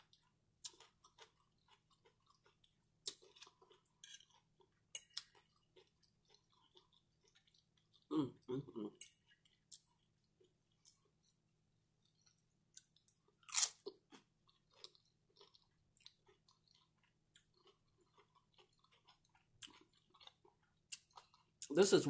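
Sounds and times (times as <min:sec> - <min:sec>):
chips crunching while chewing: 0:00.7 - 0:08.1, 0:12.8 - 0:21.6.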